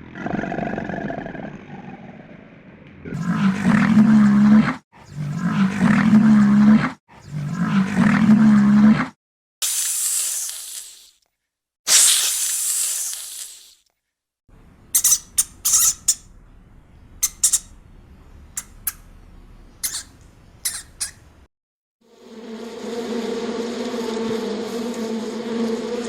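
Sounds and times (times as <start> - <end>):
animal hissing: 14.9 - 16.3, 17.2 - 17.8, 18.6 - 19.0, 19.8 - 21.3
small animal squeaking: 14.9 - 16.3, 17.2 - 17.8, 18.6 - 19.1, 19.8 - 21.4.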